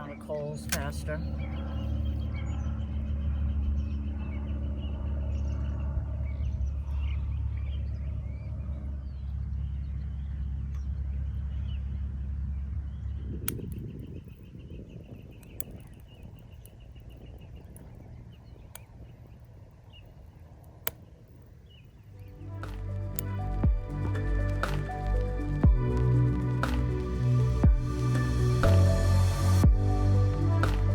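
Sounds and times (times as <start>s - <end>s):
low rumble: 1.0s - 13.8s, 22.2s - 30.9s
small birds chirping: 12.9s - 27.1s
sharp snaps or clicks: 22.6s - 27.2s, 30.5s - 30.9s.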